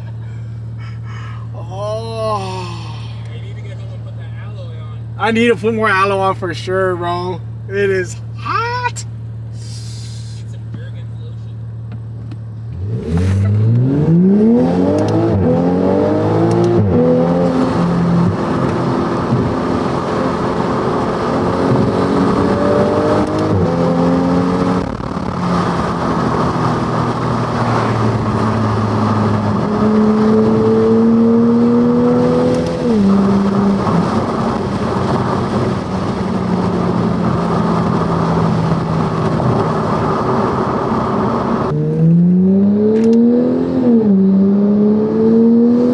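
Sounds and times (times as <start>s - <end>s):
car engine accelerating: 0.0s - 45.9s.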